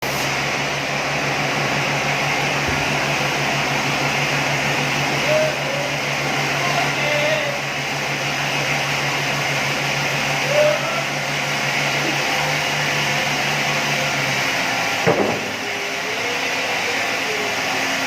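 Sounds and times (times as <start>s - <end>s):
workshop machinery whirring: 0.0s - 18.0s
sharp knock: 15.1s - 15.5s.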